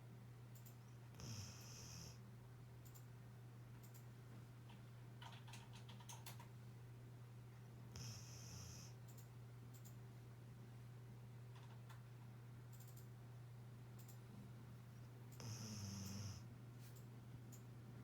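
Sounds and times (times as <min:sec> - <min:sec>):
faint dog snore: 0:01.1 - 0:02.2, 0:07.9 - 0:09.0, 0:15.4 - 0:16.5.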